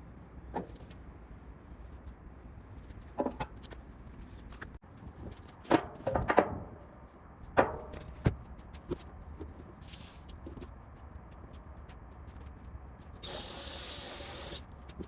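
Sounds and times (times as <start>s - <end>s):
workshop knocks and clatters: 5.6s - 6.8s, 7.5s - 9.6s.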